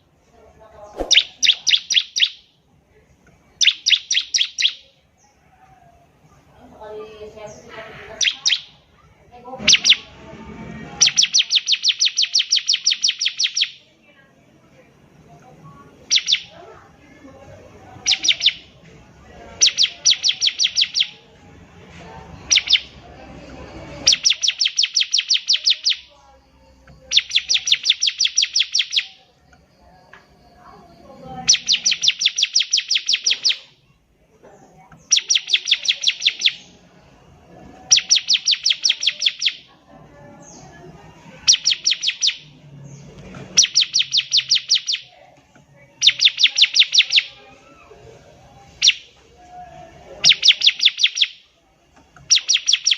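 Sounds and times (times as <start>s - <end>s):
bird singing trilled phrases: 0.9s - 2.6s, 3.4s - 5.4s, 7.3s - 9.0s, 9.6s - 10.1s, 11.0s - 13.9s, 15.9s - 16.7s, 17.4s - 18.8s, 19.6s - 21.3s, 22.4s - 23.1s, 24.0s - 34.0s, 35.0s - 37.1s, 37.8s - 39.8s, 40.4s - 47.7s, 48.7s - 49.2s, 50.2s - 51.6s, 52.2s - 52.9s.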